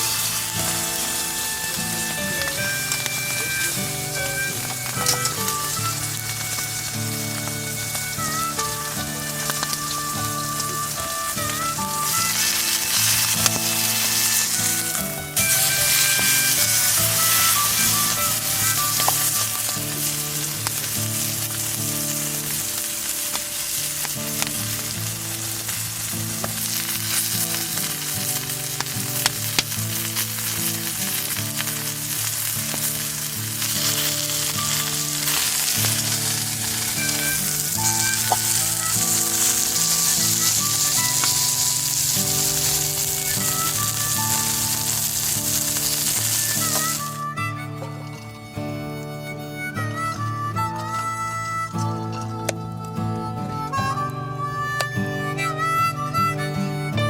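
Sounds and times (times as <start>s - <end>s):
background music: 0.0s - 21.6s
food sizzling on grill: 0.0s - 56.9s.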